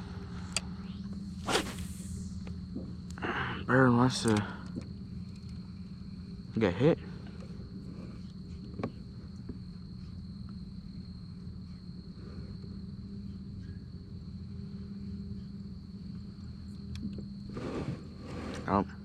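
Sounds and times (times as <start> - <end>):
thin high whine: 0.0 - 6.2
low electric hum: 0.0 - 19.0.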